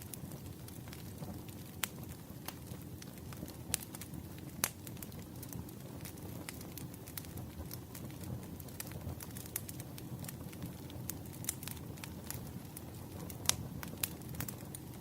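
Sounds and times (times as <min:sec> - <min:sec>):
low rush of flames: 0:00.0 - 0:15.0
firewood popping and snapping: 0:13.3 - 0:14.9.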